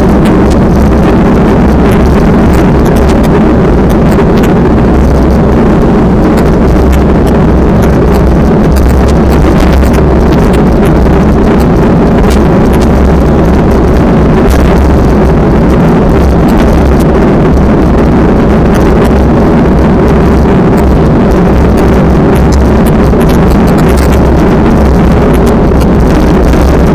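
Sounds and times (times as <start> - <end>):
strong wind buffeting microphone: 0.0 - 26.9.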